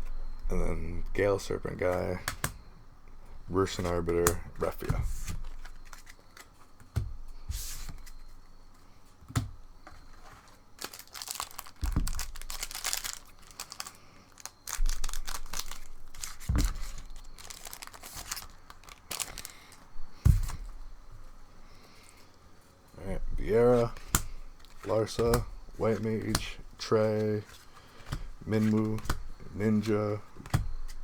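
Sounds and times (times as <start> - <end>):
foil wrappers tearing and crinkling: 4.7 - 6.6, 10.4 - 19.8.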